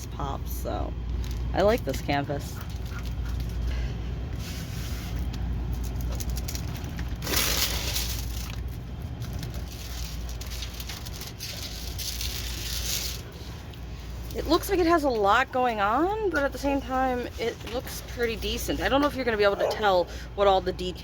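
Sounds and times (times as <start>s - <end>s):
steady low hum: 0.0s - 21.0s
packaging rustling and crinkling: 4.6s - 14.4s.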